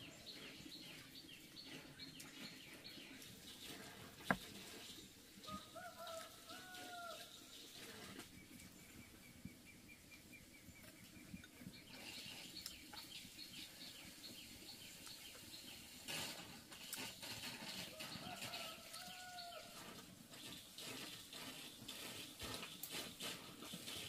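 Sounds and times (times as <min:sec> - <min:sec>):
faint birds calling: 0:05.5 - 0:16.0.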